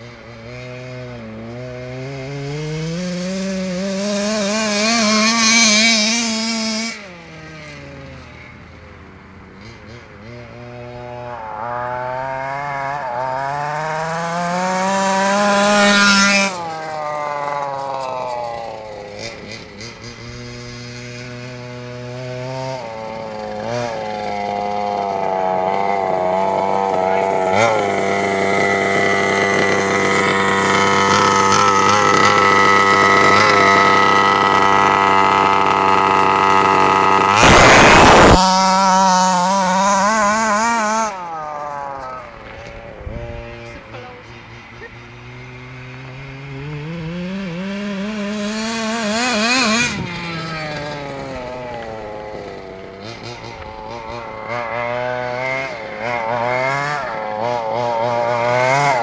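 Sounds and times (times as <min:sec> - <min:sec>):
rc car engine whining: 0:00.0 - 0:59.0
loud rushing noise: 0:09.6 - 0:15.6, 0:35.6 - 0:44.1.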